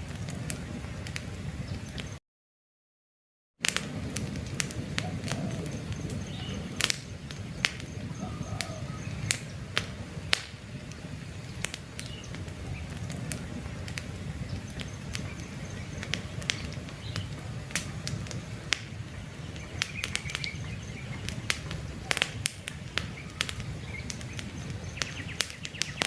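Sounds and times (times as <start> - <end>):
campfire crackling and popping: 0.0 - 2.2, 3.6 - 26.0
low rumble of flame: 0.0 - 2.2, 3.6 - 26.0
faint bird calls: 5.0 - 10.0, 10.9 - 26.0.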